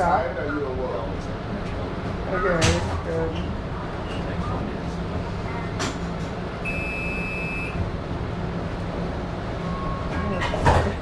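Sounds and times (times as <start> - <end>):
train car low rumble: 0.0 - 11.0
train door warning beep: 6.6 - 7.8.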